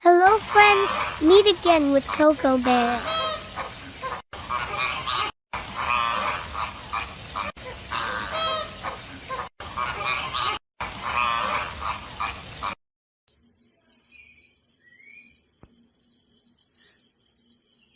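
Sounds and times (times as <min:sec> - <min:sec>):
birds honking: 0:02.7 - 0:03.8.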